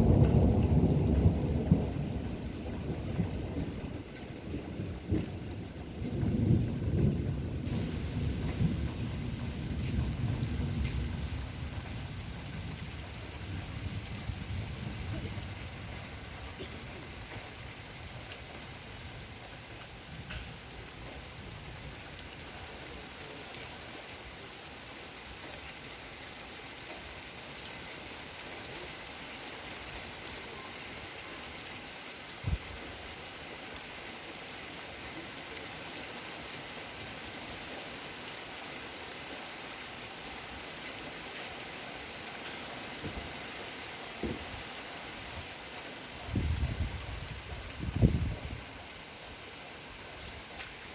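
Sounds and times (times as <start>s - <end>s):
rain falling: 0.0s - 50.9s
soft knocks: 44.2s - 44.5s.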